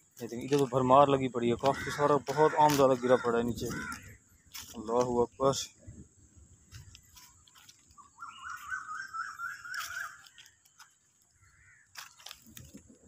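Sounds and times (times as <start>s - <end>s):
footsteps on dry leaves: 0.0s - 5.3s, 6.6s - 13.0s
bird calling in short rising notes: 8.0s - 10.4s.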